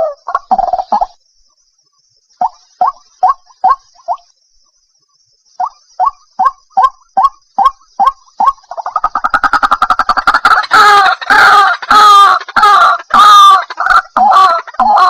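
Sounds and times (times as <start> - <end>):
waterhen calling harsh phrases: 9.4 - 15.0.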